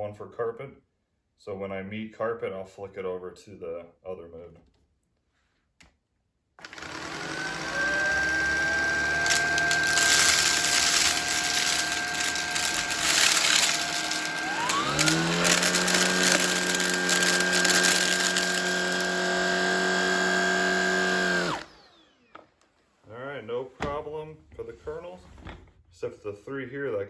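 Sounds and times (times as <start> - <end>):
vacuum cleaner motor whine: 6.6 - 22.5
popcorn kernels rattling: 6.7 - 21.6.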